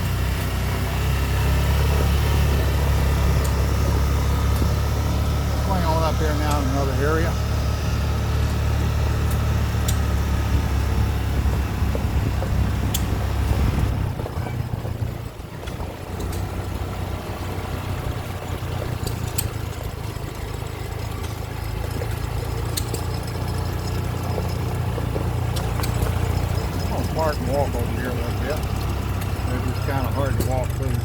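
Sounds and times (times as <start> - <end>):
small vehicle engine running: 0.0 - 31.0
light clicks and rattles: 13.8 - 31.0.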